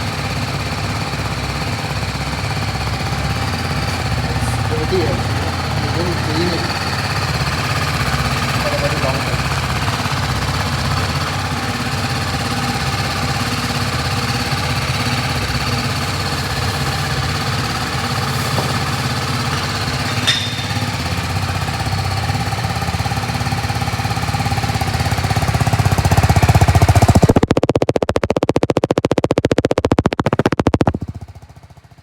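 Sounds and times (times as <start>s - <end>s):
motorcycle engine idling: 0.0s - 27.7s, 30.7s - 32.0s
sharp click: 20.1s - 20.9s.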